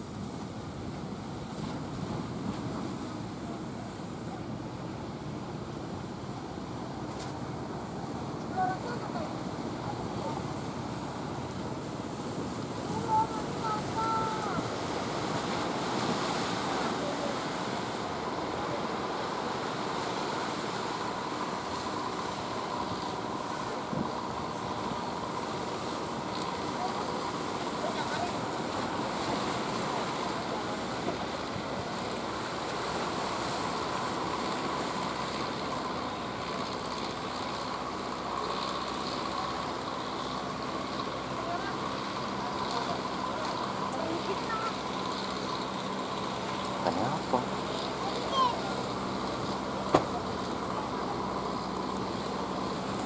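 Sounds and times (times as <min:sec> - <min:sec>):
faint steady whine: 0:00.0 - 0:53.0
surf: 0:00.0 - 0:53.0
waves washing: 0:00.0 - 0:53.0
speedboat engine rumbling: 0:00.1 - 0:53.0
brief thump: 0:49.9 - 0:50.4.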